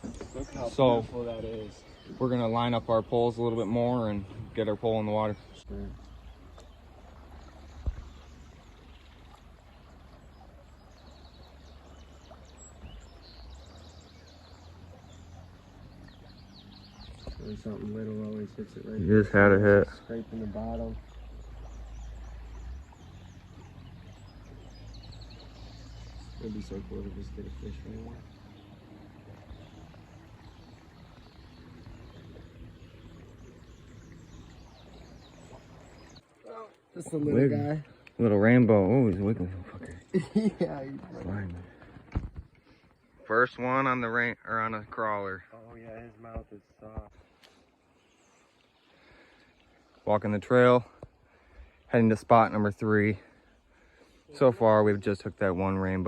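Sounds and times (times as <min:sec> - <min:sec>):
birds chirping: 0:00.0 - 0:56.0
river water running: 0:00.0 - 0:56.0
thump: 0:42.1 - 0:42.4.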